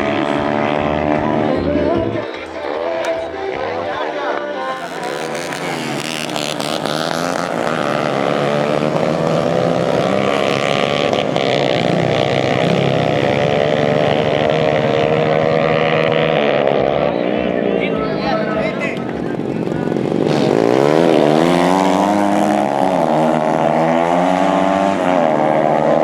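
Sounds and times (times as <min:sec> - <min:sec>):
dirt bike engine at high revs: 0:00.0 - 0:26.0.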